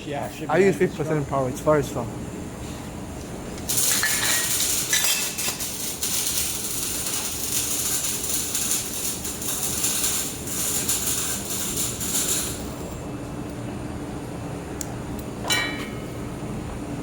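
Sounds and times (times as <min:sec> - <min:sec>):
machine hum: 0:00.0 - 0:17.0
laser welder crackling hiss: 0:03.6 - 0:13.0.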